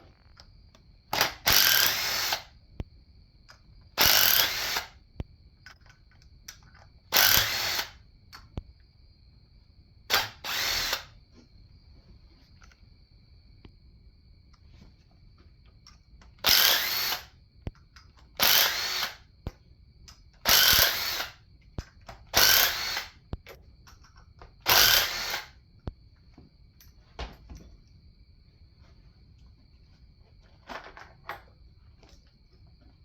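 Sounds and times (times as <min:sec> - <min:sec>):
handheld power tool bursts: 0:01.1 - 0:02.5, 0:04.0 - 0:05.0, 0:07.1 - 0:08.0, 0:10.1 - 0:11.1, 0:16.4 - 0:17.3, 0:18.4 - 0:19.3, 0:20.4 - 0:21.4, 0:22.3 - 0:23.2, 0:24.6 - 0:25.6.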